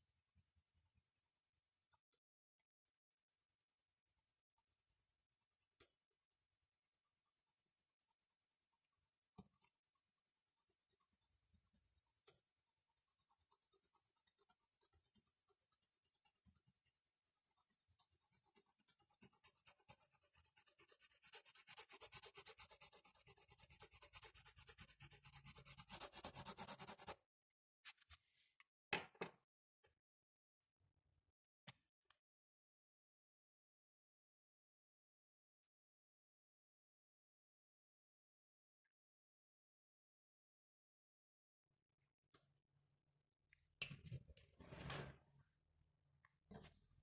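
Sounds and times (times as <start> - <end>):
drawing tool scratching on paper: 0.0 - 2.1, 2.8 - 27.2.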